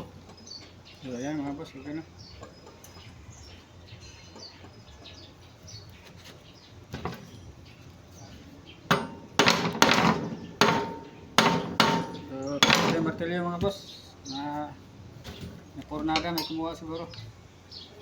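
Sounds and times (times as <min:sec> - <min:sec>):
hammer beating metal on metal: 0:08.9 - 0:13.2.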